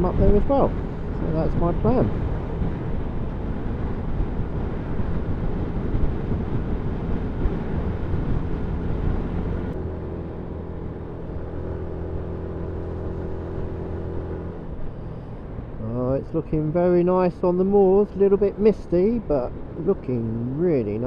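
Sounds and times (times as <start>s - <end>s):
wind noise: 0.0s - 11.7s.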